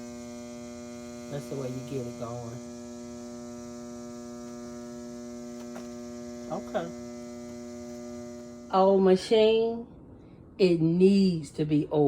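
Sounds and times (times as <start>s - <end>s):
sewing machine motor humming: 0.0s - 8.7s.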